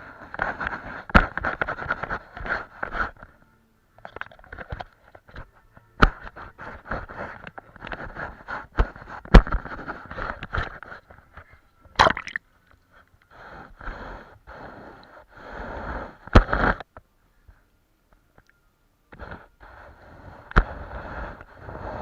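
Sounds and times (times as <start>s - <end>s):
paintbrush scrubbing: 6.2s - 11.2s.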